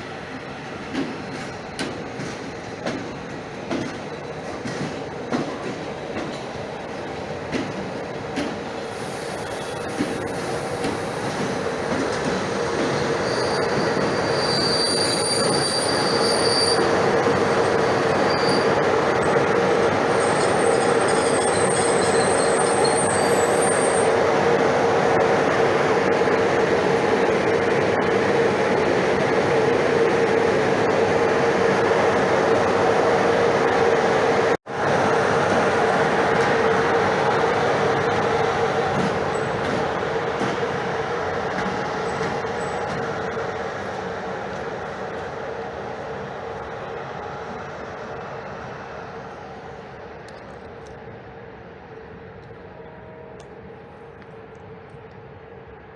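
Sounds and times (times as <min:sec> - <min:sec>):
passenger train rumble: 0:00.0 - 0:55.9
high wheel squeals: 0:12.8 - 0:19.4, 0:20.1 - 0:24.1.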